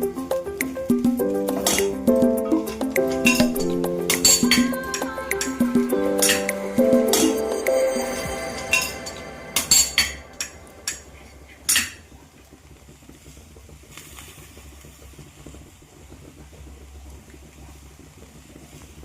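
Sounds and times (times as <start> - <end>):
kitchen utensils and dishes clinking: 1.5 - 5.6, 6.2 - 6.5, 7.1 - 12.0.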